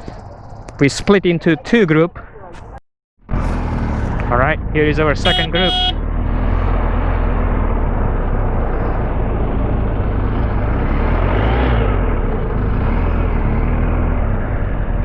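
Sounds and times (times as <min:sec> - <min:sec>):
motorcycle engine rumbling: 0:00.0 - 0:11.2.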